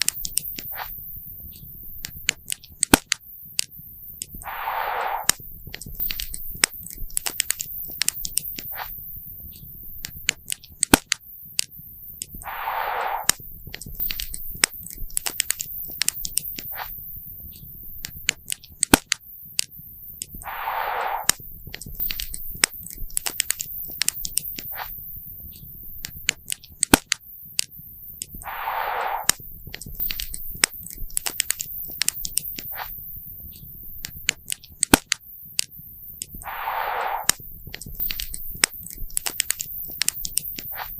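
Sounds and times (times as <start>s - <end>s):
short hissing rush: 4.4s - 5.4s, 12.4s - 13.4s, 20.4s - 21.4s, 28.4s - 29.4s, 36.4s - 37.5s.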